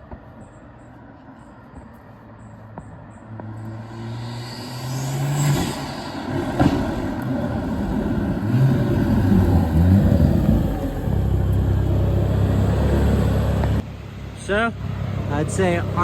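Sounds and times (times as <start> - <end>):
car engine accelerating hard: 3.2 - 13.8.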